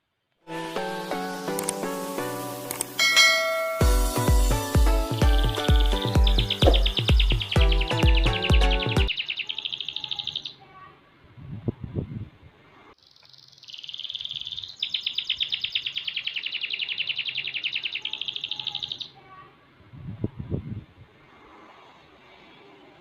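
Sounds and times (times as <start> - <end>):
canary singing trills: 5.1 - 10.8, 13.0 - 19.4.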